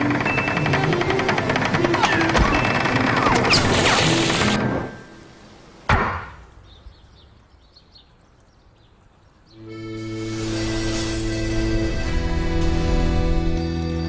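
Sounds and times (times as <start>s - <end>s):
film score music: 9.5s - 14.0s.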